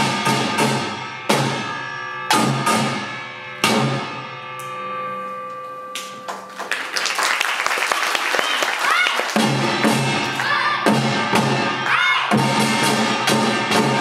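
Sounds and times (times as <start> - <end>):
percussion ensemble with gongs and drums: 0.0 - 4.8, 7.8 - 14.0
gongs ringing: 0.0 - 7.0.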